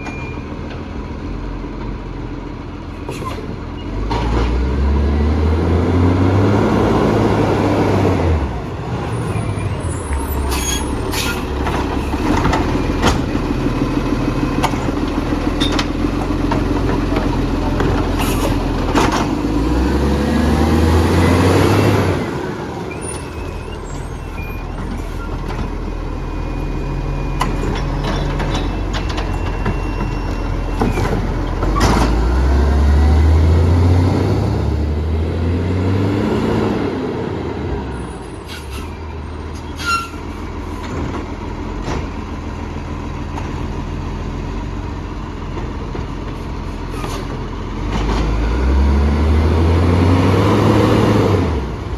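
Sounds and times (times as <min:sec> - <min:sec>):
diesel engine revving: 0:02.4 - 0:51.9
air brake hisses: 0:38.4 - 0:38.9.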